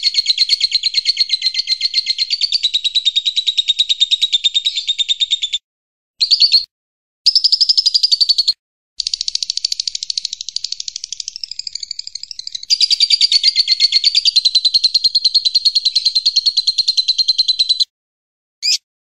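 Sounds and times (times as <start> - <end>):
songbird trilling: 0.0 - 5.6, 7.3 - 17.8, 18.6 - 18.8.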